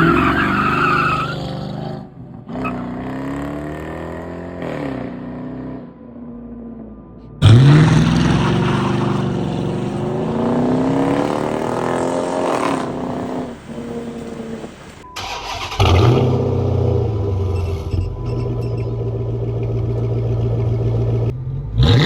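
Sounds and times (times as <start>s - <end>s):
car engine revving and idling: 7.4s - 22.0s.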